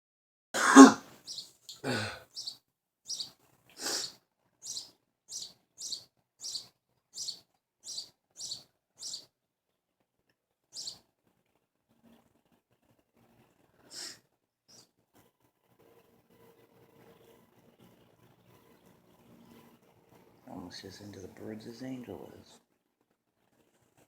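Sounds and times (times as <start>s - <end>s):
loud non-bird sounds: 0.6s - 9.3s, 10.7s - 11.0s, 13.8s - 14.9s, 16.4s - 22.6s
bird chirping: 1.1s - 9.3s, 10.7s - 11.0s, 14.7s - 14.9s.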